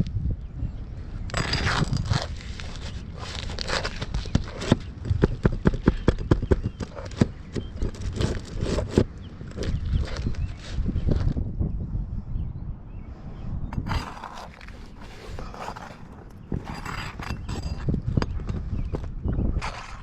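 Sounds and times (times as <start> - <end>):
tools scraping under shingle: 1.2 - 11.4, 13.7 - 20.0.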